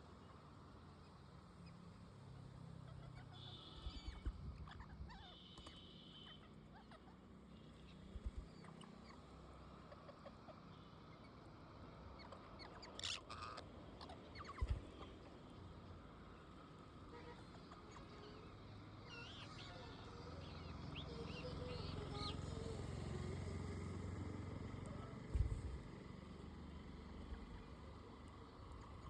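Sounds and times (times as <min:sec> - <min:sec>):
parrots chirping and squeaking: 0:02.9 - 0:07.1, 0:08.1 - 0:09.2, 0:12.2 - 0:15.0.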